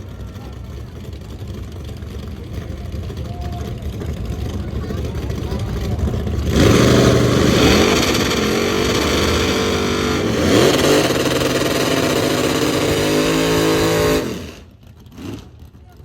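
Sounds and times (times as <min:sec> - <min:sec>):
racing engine at high revs: 0:04.2 - 0:15.7.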